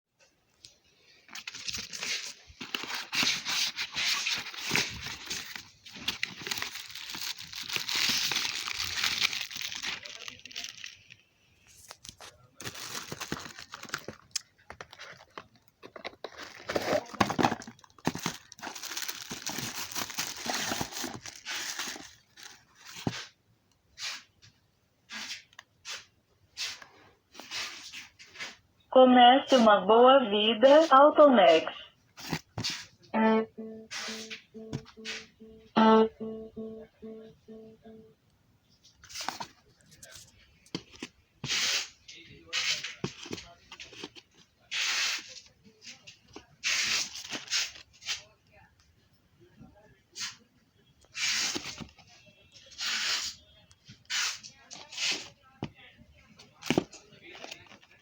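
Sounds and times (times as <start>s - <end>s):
plastic wrap and cardboard rustling: 1.0s - 23.4s, 32.1s - 33.0s, 38.9s - 48.4s, 51.1s - 58.0s
packaging tearing and crinkling: 1.3s - 23.2s.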